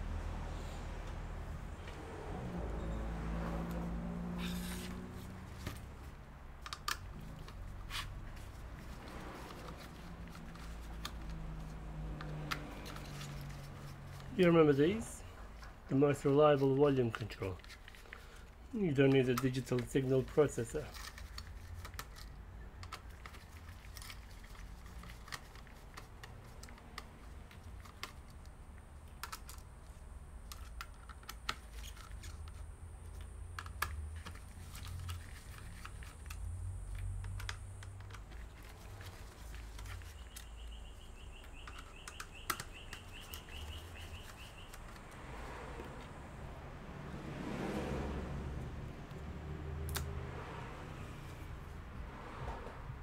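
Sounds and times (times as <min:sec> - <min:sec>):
plastic parts and tools clicking: 0:06.6 - 0:14.4, 0:15.6 - 0:45.3.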